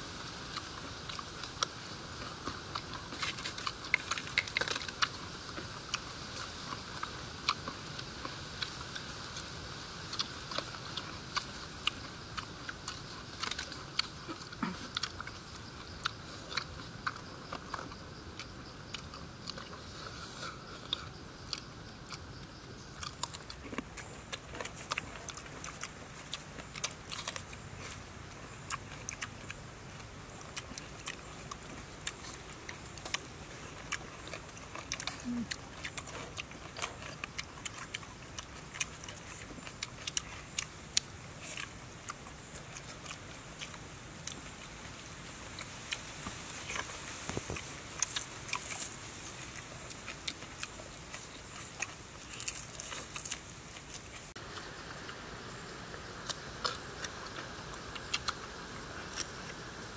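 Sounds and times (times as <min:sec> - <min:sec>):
crunchy chewing and biting: 0:00.0 - 0:59.9.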